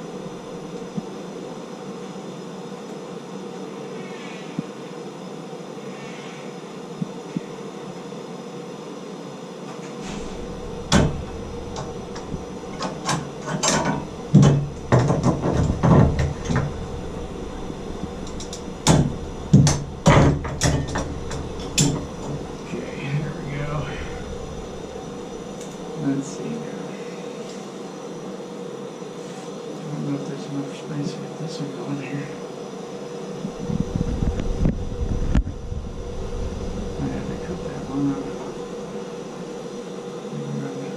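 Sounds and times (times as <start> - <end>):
steady hiss: 0.0 - 40.9
plumbing knocks and clatters: 10.2 - 22.7.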